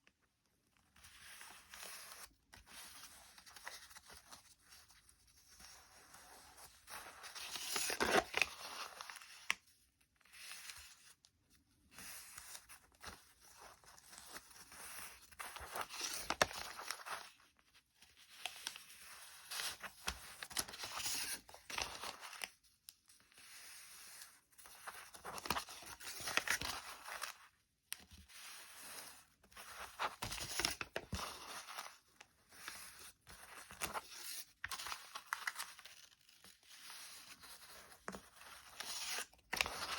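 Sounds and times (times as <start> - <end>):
paper being folded and creased: 0.9 - 9.6, 11.9 - 22.6, 23.2 - 39.9.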